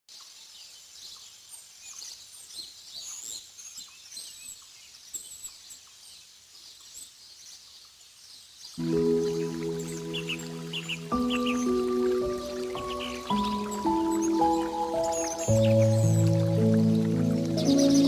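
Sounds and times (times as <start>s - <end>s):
small birds chirping: 0.2s - 18.0s
music: 8.8s - 18.0s.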